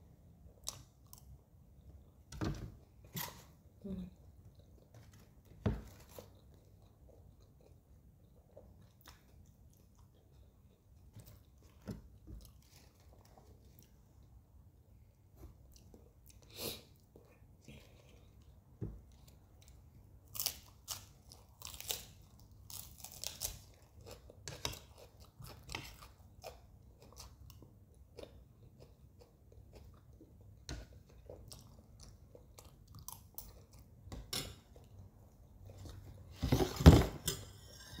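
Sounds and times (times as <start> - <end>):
chewing macaroni: 6.0 - 11.8, 15.7 - 34.0.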